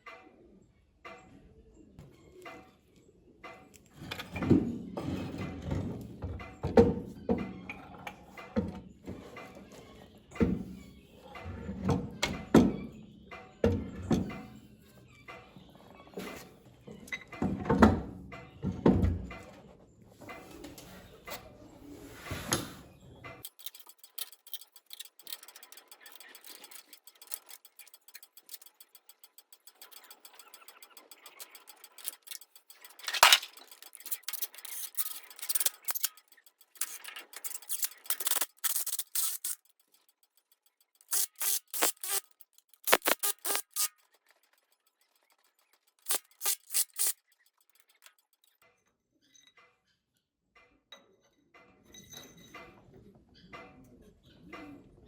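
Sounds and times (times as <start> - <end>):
tools scraping and clattering: 22.1 - 48.5
rapid clicking: 23.4 - 48.6.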